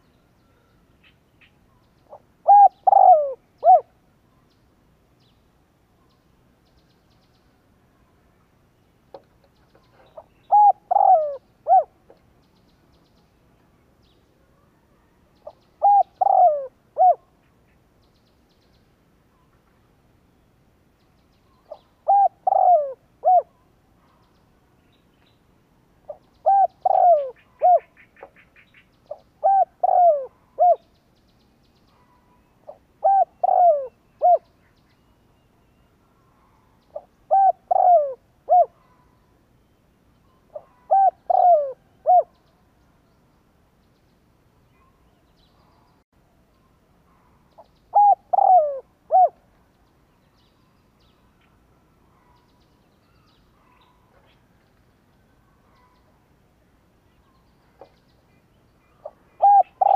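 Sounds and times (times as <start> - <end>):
dove cooing: 2.1 - 4.0, 9.9 - 12.0, 15.4 - 17.3, 21.7 - 23.6, 26.1 - 28.4, 29.1 - 30.8, 32.7 - 34.5, 36.9 - 38.9, 40.5 - 42.3, 47.9 - 49.4, 59.0 - 59.9.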